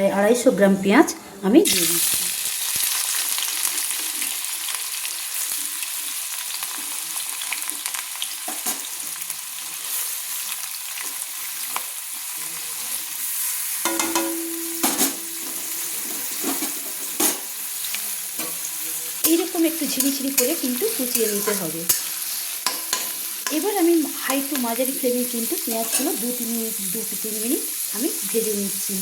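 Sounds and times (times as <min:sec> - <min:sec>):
onions sizzling in hot oil: 0:01.6 - 0:29.0.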